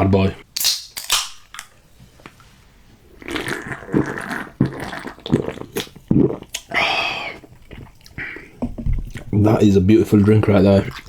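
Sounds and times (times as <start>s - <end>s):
person gulping drink: 3.1s - 9.4s, 10.1s - 11.0s.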